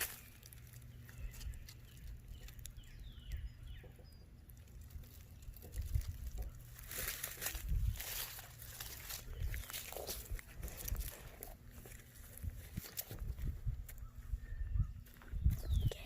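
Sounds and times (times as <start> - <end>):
rustling footsteps: 4.6 - 14.3
faint bird chirps: 13.9 - 16.0.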